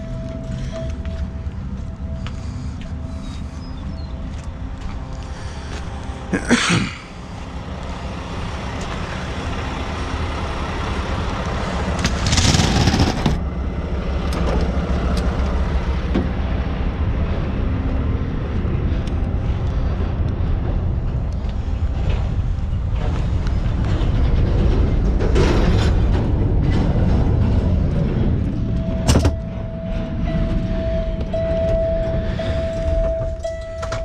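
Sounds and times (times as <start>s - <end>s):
diesel truck engine running: 0.0s - 34.0s.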